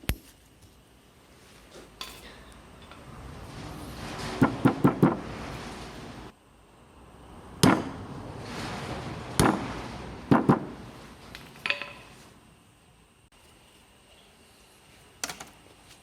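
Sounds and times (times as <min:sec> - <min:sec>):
sharp knocks on metal: 0:04.4 - 0:05.2, 0:07.6 - 0:08.0, 0:09.4 - 0:10.8.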